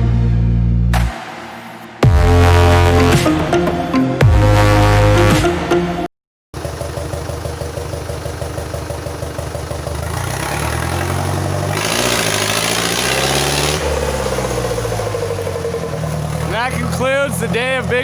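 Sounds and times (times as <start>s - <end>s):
engine revving: 6.6s - 18.0s.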